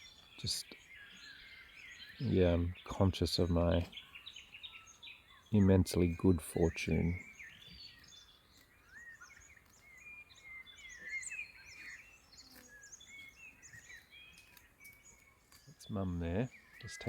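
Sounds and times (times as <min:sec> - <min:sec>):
small birds chirping and whistling: 0:00.0 - 0:17.0.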